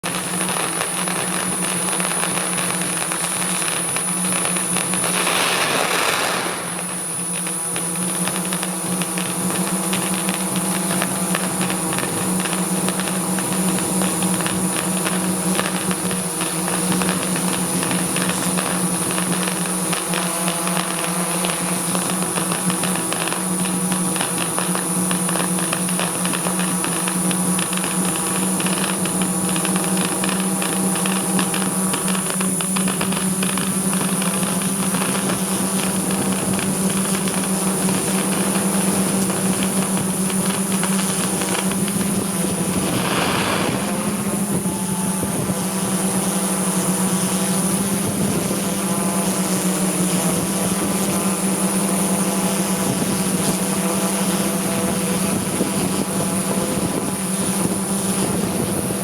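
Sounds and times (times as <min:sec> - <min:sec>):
drone propellers whining: 0:41.1 - 0:46.9.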